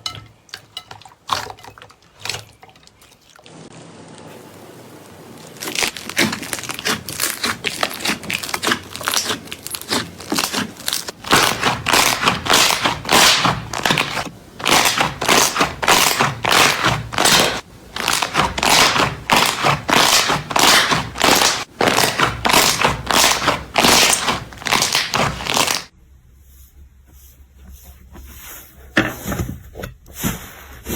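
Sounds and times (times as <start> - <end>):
slime squishing: 5.6 - 25.9.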